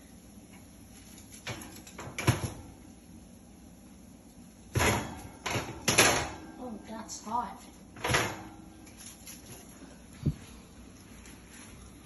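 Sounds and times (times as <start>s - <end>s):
metal baking tray clattering: 1.0s - 2.7s, 4.7s - 6.8s, 8.0s - 9.7s.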